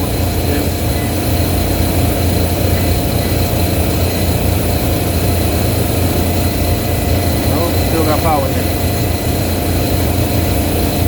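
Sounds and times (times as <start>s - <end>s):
faint steady whine: 0.0s - 11.0s
hvac equipment humming: 0.0s - 11.0s.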